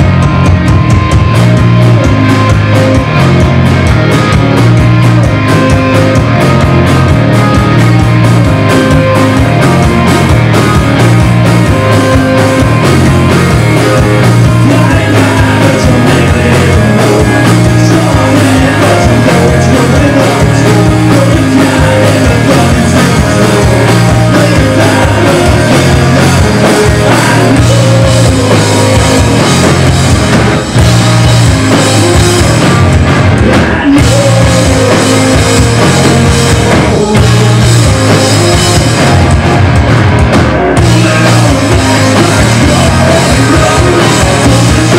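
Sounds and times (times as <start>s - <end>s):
bass guitar: 0.0s - 44.9s
distorted guitars: 0.0s - 44.9s
drum kit pounding: 0.0s - 44.9s
person singing: 11.7s - 29.8s, 33.4s - 39.2s, 40.6s - 44.9s.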